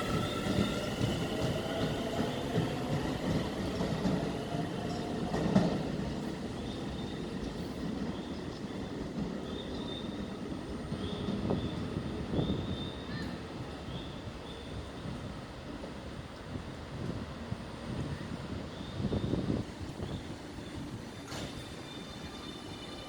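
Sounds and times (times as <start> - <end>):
train knocks: 0.0 - 10.2, 20.8 - 23.0
train wheels rumbling on rails: 0.0 - 23.0.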